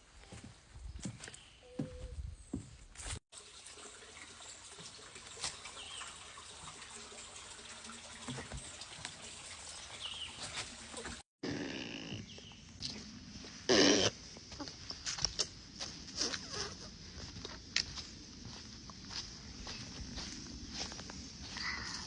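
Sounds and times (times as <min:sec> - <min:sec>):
stream trickling: 0:03.3 - 0:12.6, 0:14.3 - 0:22.0.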